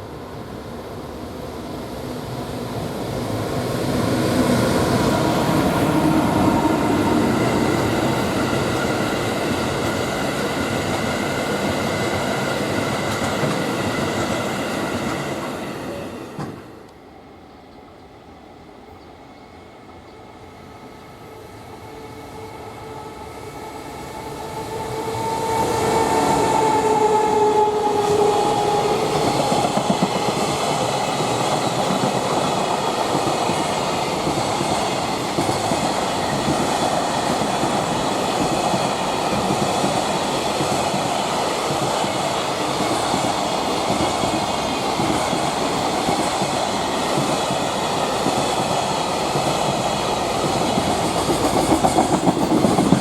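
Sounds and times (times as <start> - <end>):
train wheels rumbling on rails: 1.8 - 16.9, 21.9 - 53.0
train two-note horn tone: 24.4 - 29.2.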